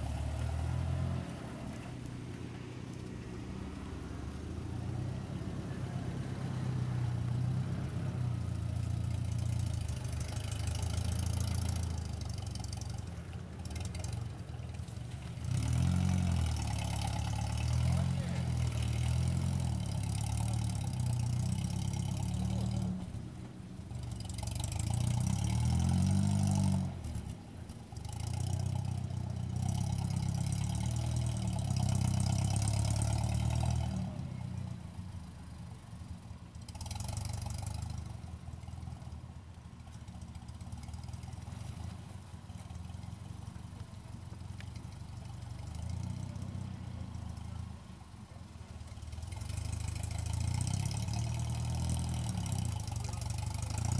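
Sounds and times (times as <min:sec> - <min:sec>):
vehicle engine revving: 0:00.0 - 0:53.9.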